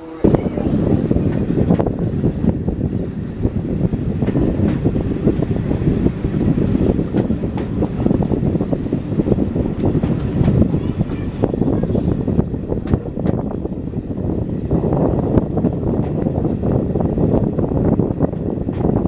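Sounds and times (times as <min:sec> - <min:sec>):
train rumbling: 0:00.0 - 0:19.0
wind buffeting microphone: 0:00.0 - 0:19.0.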